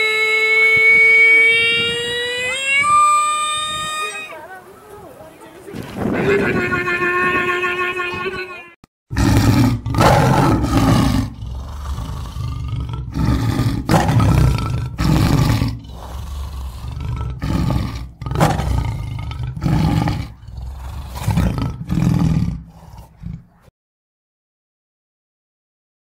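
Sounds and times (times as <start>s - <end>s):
tiger roaring and growling: 9.1s - 23.7s.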